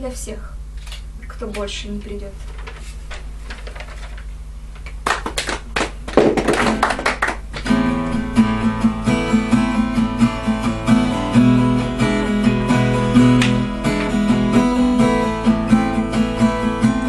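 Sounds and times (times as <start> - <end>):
acoustic guitar strumming chords: 6.6 - 17.0.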